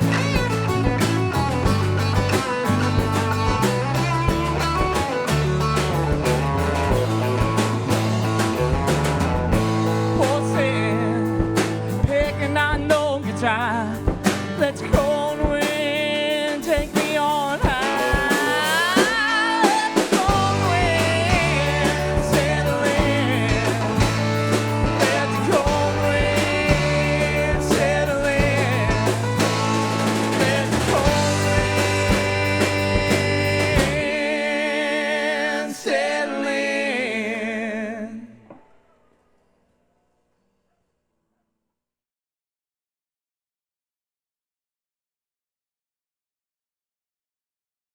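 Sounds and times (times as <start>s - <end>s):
lead electric guitar with bends: 0.0s - 34.2s
drums: 0.0s - 34.9s
bass line: 0.0s - 35.0s.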